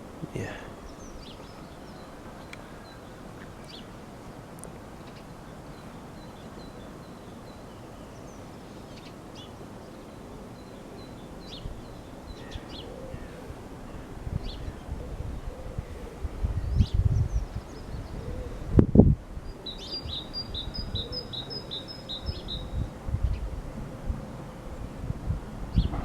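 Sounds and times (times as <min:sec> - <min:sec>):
small birds chirping: 0:00.2 - 0:04.0, 0:04.6 - 0:13.4, 0:19.4 - 0:23.5.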